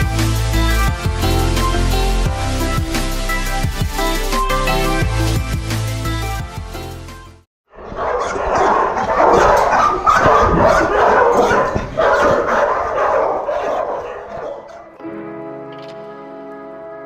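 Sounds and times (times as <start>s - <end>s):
dogs barking and yipping: 7.7s - 15.0s.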